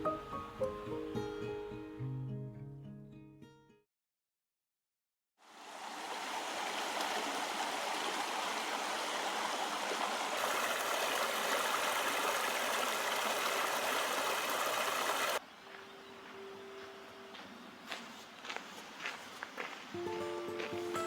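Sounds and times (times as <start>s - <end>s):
river babbling over stones: 5.5s - 15.4s.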